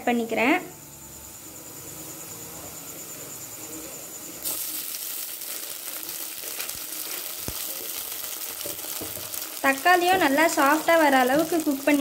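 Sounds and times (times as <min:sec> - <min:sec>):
food sizzling in hot oil: 0:00.8 - 0:12.0.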